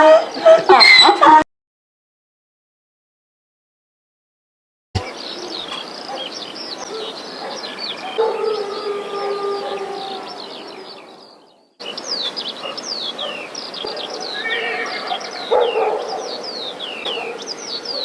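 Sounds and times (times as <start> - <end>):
birds chirping: 0.0 - 1.4, 5.0 - 18.0
bird steady held call: 5.0 - 18.0.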